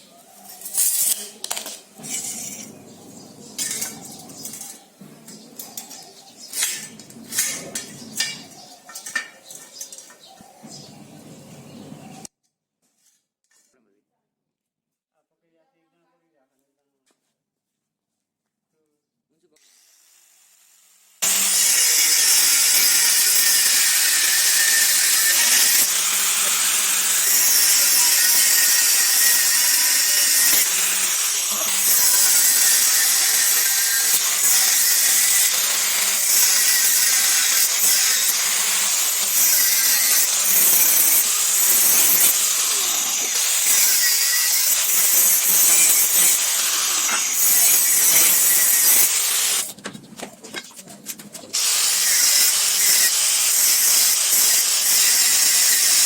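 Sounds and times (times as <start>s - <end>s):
power tool rasping on metal: 2.0s - 12.3s, 21.2s - 49.8s, 51.5s - 56.0s.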